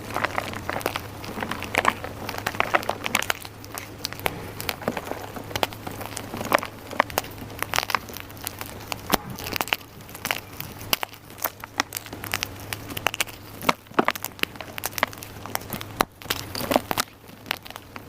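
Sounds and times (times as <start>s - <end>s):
chalk crunching and crackling: 0.0s - 18.0s.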